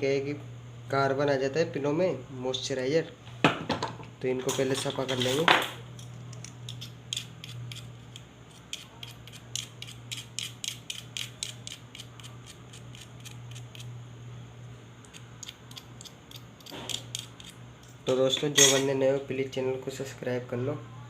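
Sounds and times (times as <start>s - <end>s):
steady low hum: 0.0s - 21.0s
metal tool scraping clicks: 15.0s - 18.0s.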